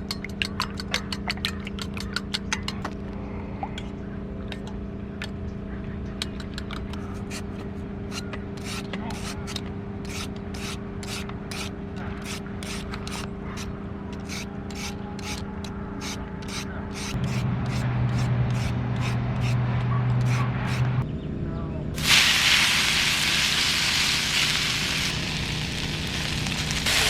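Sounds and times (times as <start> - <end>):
rhythmic scraping strokes: 7.0 - 21.0
low hum: 9.2 - 27.0.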